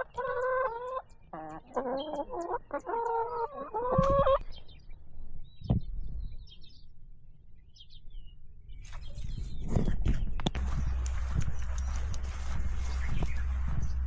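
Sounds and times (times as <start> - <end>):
rustling and clicking: 8.8 - 14.0
steady low rumble: 10.6 - 14.0.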